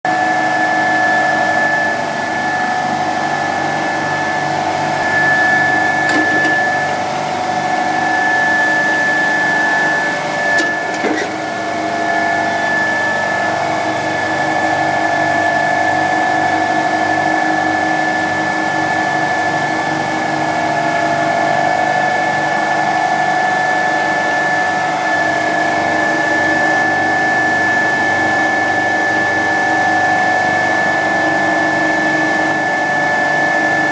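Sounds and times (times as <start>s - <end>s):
refrigeration compressor running: 0.1s - 33.9s
brief click: 10.6s - 11.4s.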